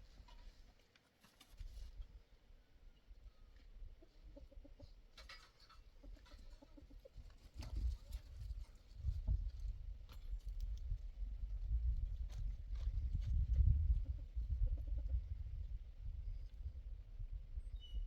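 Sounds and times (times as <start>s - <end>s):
chickens clucking: 4.0s - 8.2s.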